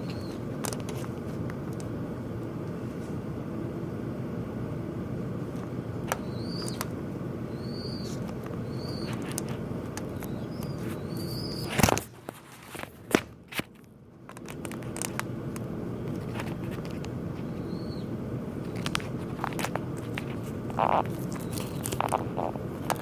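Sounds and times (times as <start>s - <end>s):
small birds chirping: 0.0s - 0.5s, 6.2s - 9.4s, 10.0s - 11.7s, 17.4s - 18.9s, 20.7s - 23.0s
steady noise: 14.6s - 23.0s.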